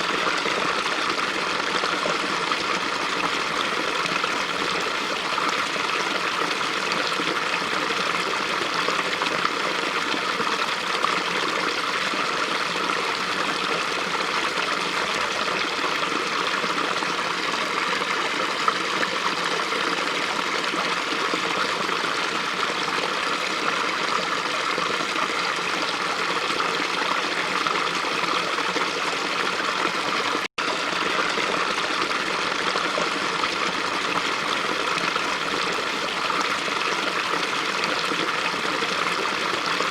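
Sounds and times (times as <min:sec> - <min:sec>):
brook flowing: 0:00.0 - 0:39.9.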